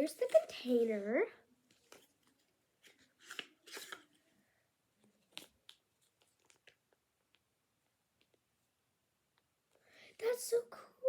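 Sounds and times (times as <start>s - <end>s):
packaging rustling and crinkling: 1.7s - 4.2s, 5.2s - 7.0s.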